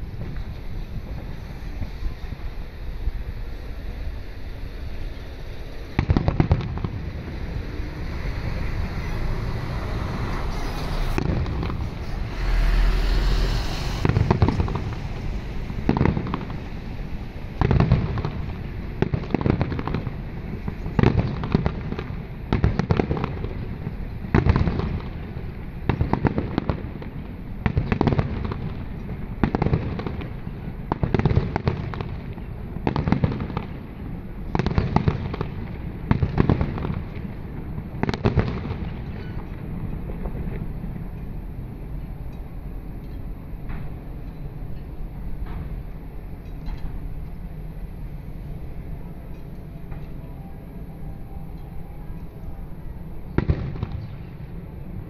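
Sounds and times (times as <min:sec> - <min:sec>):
firework shells bursting: 0:09.8 - 0:23.4.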